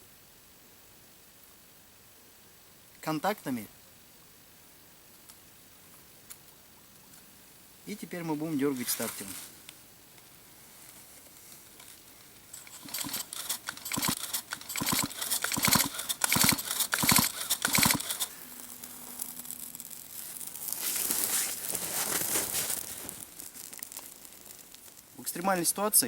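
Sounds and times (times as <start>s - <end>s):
hissing crackle: 10.5s - 26.0s
chainsaw recoil starter pulls: 11.8s - 20.6s
engine cranking: 12.4s - 20.5s.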